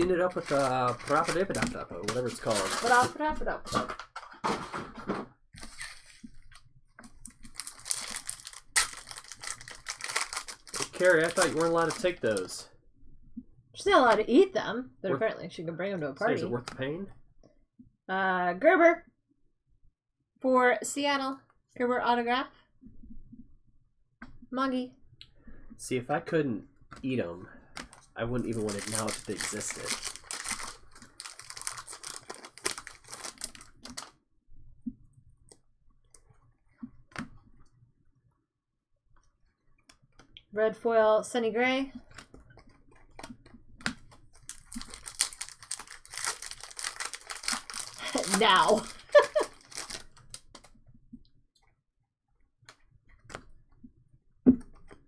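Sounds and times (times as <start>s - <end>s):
trading cards crinkly clicking: 0.0s - 3.2s, 5.6s - 12.6s, 27.7s - 34.1s, 42.0s - 50.8s.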